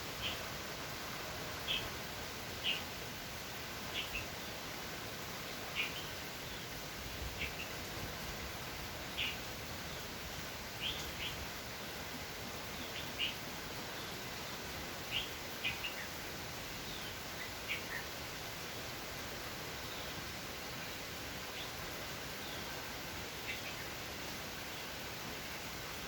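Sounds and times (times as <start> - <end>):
rain falling: 0.0 - 26.0.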